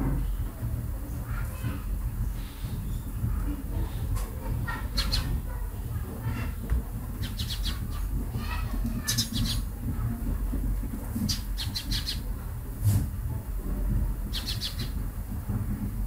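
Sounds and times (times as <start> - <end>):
low background rumble: 0.0 - 16.0
birds chirping: 2.3 - 12.7, 14.1 - 15.2.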